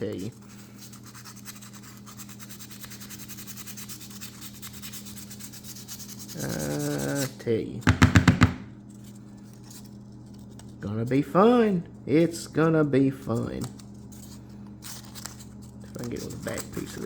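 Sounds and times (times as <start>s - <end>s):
sandpaper scratching metal: 0.8s - 7.3s.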